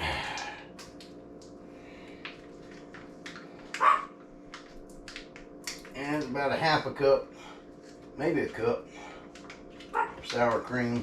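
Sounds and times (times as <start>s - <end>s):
steady hum: 0.0s - 11.0s
dog barking: 3.8s - 4.1s, 9.9s - 10.2s
dog yelp: 3.8s - 4.1s, 9.9s - 10.2s.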